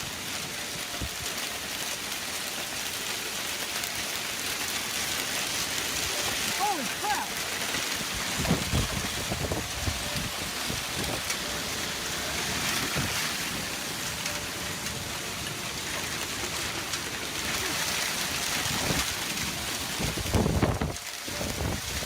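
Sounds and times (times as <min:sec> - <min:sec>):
heavy rain pouring: 0:00.0 - 0:22.0
wind buffeting microphone: 0:07.6 - 0:13.7, 0:16.4 - 0:22.0.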